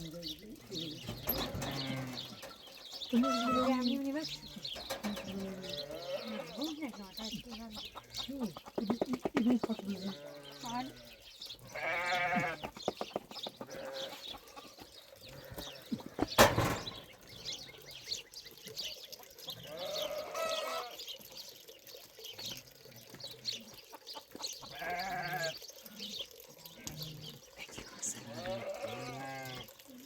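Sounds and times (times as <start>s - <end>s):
sheep bleating: 1.6s - 2.4s, 3.1s - 3.9s, 5.5s - 6.7s, 10.0s - 12.6s, 13.7s - 14.2s, 24.7s - 25.6s, 28.2s - 29.7s.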